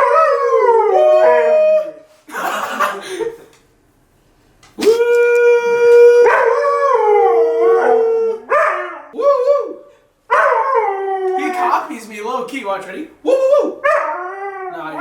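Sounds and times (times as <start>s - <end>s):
husky howling: 0.0s - 2.1s, 4.8s - 11.7s, 13.2s - 15.0s.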